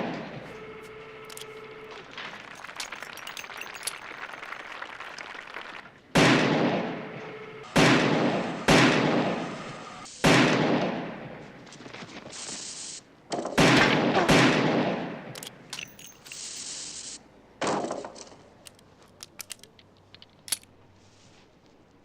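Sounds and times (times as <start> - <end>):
small clicks: 0.5 - 5.8, 18.0 - 20.8
gunshots: 6.1 - 11.6, 13.3 - 15.7
noisy hiss: 6.8 - 13.8, 15.2 - 22.0.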